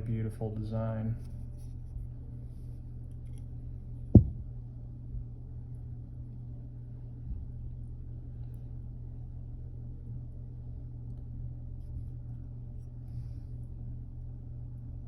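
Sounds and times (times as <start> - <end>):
steady low hum: 0.0 - 15.0
dull handling thumps: 4.2 - 4.5.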